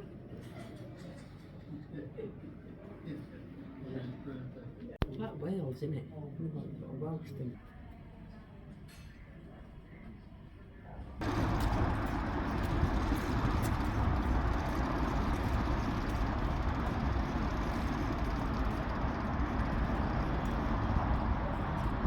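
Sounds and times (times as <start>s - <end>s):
vehicle low rumble: 11.2s - 22.0s.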